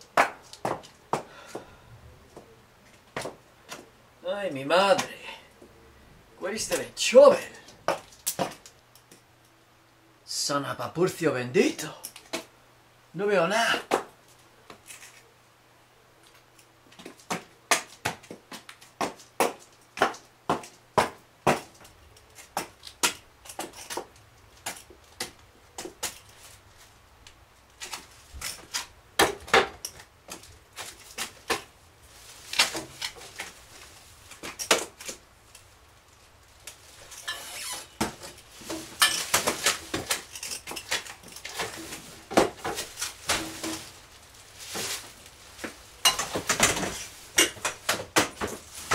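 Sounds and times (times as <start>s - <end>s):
hard objects clicking and knocking: 36.6s - 44.0s.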